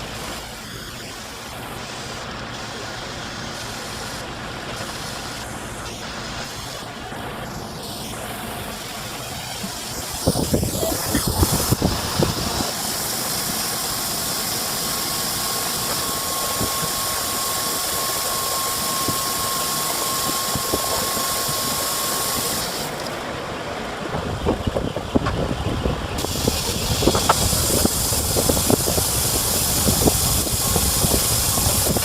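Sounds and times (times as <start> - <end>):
loud hiss of jetting air: 0.0 - 23.1, 26.2 - 32.0
thin steady whistle: 14.9 - 22.8.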